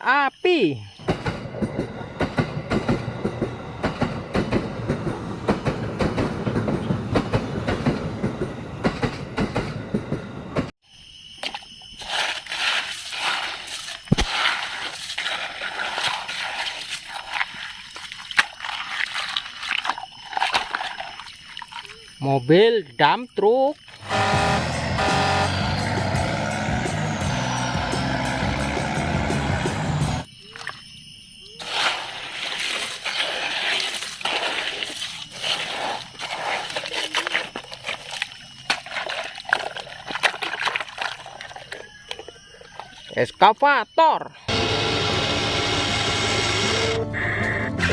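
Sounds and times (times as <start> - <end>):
water sloshing and splashing: 11.4 - 22.2, 23.7 - 24.1, 31.6 - 43.2.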